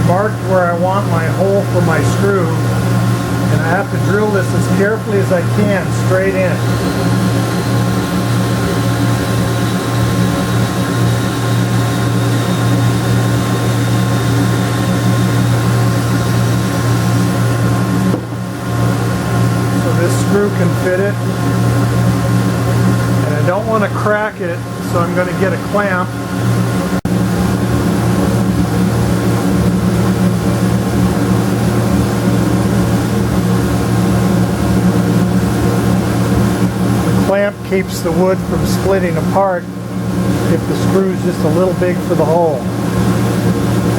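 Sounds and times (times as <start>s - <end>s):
motor humming: 0.0s - 43.9s
drill boring into wood: 5.6s - 17.1s.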